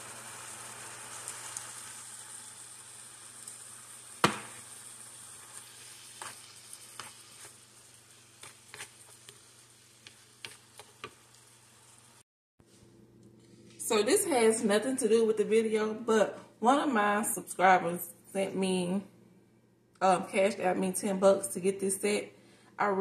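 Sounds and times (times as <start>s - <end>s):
meat sizzling in a skillet: 0.0s - 12.2s
sharp knock: 4.2s - 4.6s.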